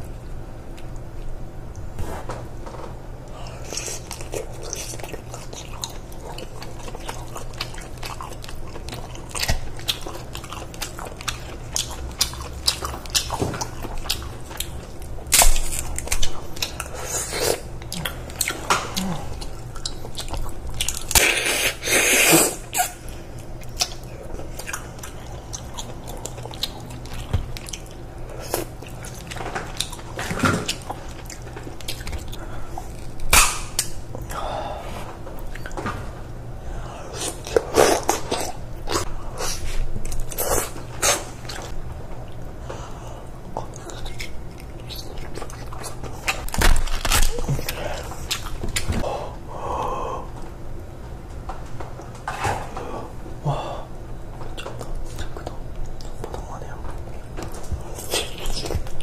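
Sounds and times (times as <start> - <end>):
close chewing and biting: 3.3 - 21.9, 22.5 - 34.4, 37.1 - 42.5, 43.4 - 49.0, 54.5 - 59.0.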